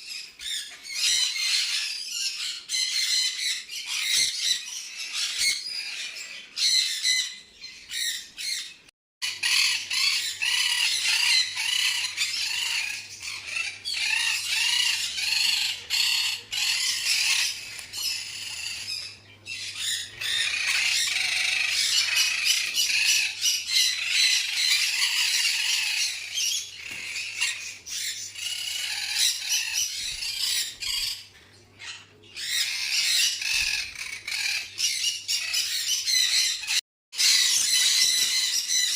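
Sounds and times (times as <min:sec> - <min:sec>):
parrots squawking and chattering: 0:00.0 - 0:38.9.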